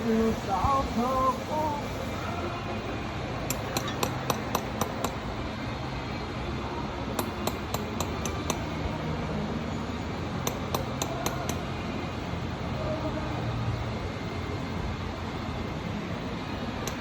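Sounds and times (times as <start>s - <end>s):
workshop hum: 0.0s - 17.0s
metallic clicks of hand tools: 3.5s - 5.2s, 7.2s - 8.7s, 10.4s - 11.6s.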